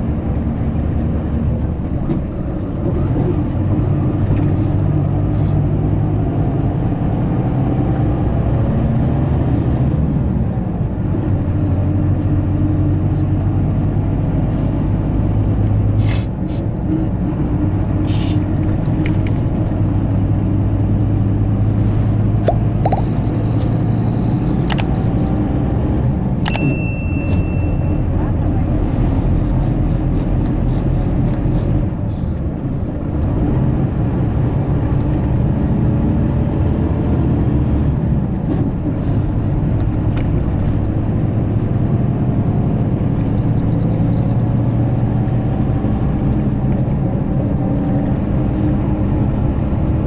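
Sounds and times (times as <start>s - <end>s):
road rumble: 0.0s - 50.0s
coach diesel engine running: 10.3s - 35.0s.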